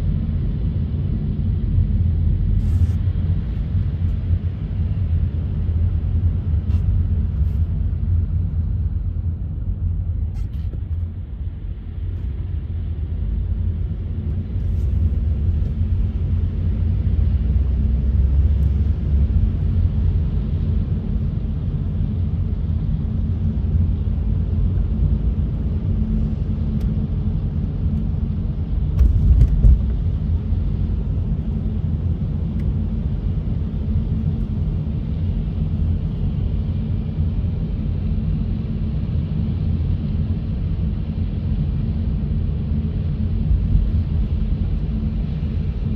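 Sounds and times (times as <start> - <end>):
car road and engine rumble: 0.0 - 45.9
thump: 29.0 - 30.0.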